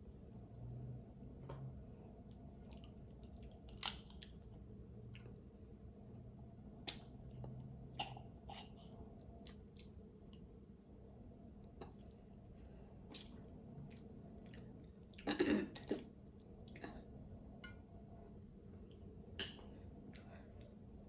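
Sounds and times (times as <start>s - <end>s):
faint chewing: 2.3s - 5.4s, 13.1s - 17.1s.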